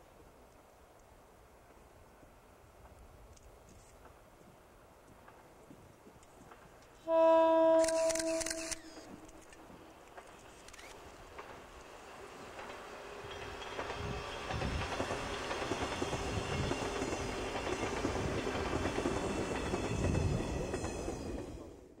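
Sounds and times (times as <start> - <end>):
electric train passing: 6.4 - 22.0.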